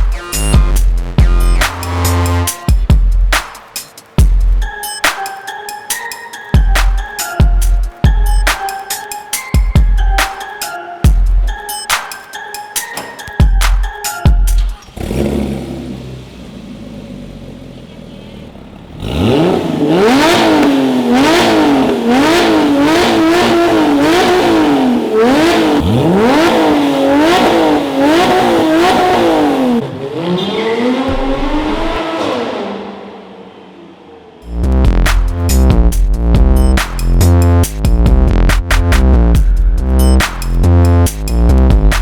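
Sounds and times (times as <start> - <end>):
car engine revving: 0.0 - 4.7, 14.6 - 42.0.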